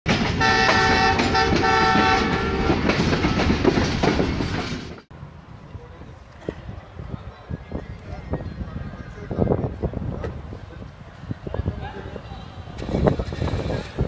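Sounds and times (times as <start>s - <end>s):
moving train rumble: 0.1s - 14.0s
locomotive horn blasts: 0.4s - 2.8s.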